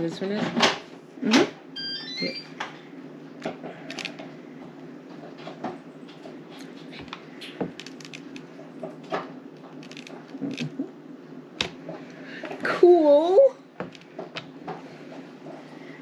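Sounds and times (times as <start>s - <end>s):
steady low hum: 0.0s - 16.0s
small pieces clicking on table: 9.7s - 10.7s.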